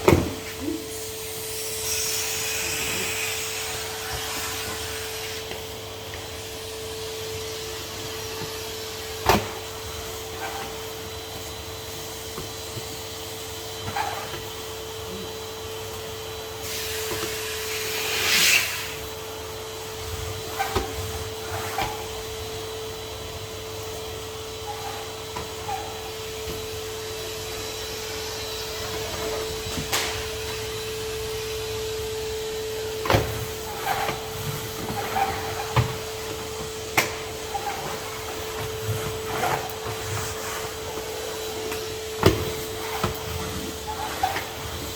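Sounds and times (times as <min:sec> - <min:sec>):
vacuum cleaner motor hum: 0:00.0 - 0:44.9
hissing rush of suction: 0:00.9 - 0:05.5, 0:16.6 - 0:19.1.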